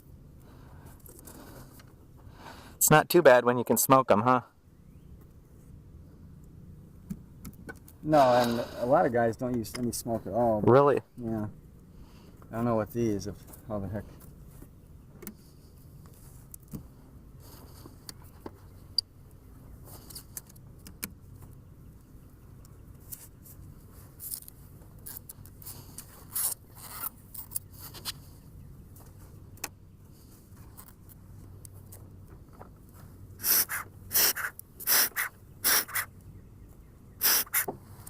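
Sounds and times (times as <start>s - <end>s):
low steady hum: 0.0s - 38.0s
beekeeping equipment clicks and scrapes: 19.8s - 21.6s, 23.0s - 28.3s.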